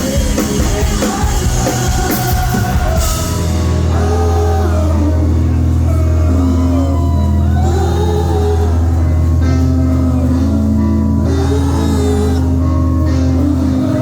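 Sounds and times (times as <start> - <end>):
drums and cymbals crashing: 0.0 - 4.2
live rock band playing: 0.0 - 14.0
held low bass note: 0.7 - 14.0.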